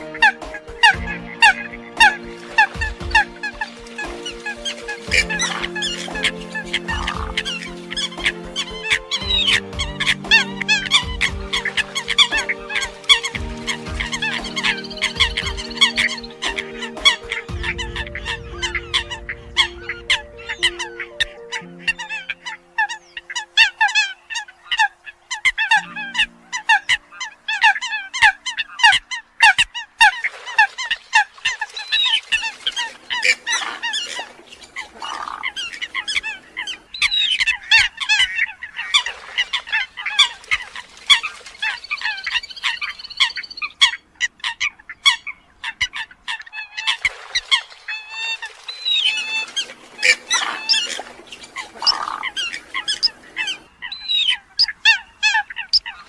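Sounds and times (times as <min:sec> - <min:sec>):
birds honking calls: 0:00.0 - 0:56.0.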